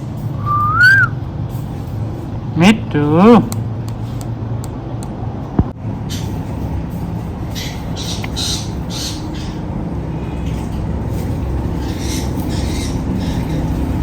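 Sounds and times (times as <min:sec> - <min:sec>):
parrot squawking: 0:00.4 - 0:01.2.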